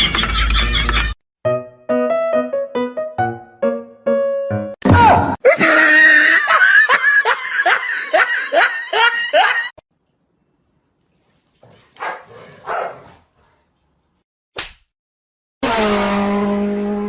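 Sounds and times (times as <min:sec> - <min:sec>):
person laughing shrilly: 0:04.9 - 0:09.8.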